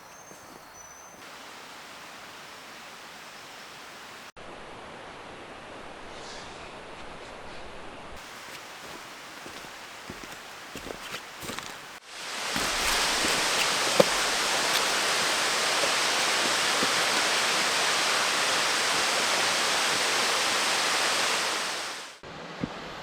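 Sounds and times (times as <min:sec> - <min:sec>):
creek water rushing: 0:00.0 - 0:04.3, 0:08.2 - 0:22.2.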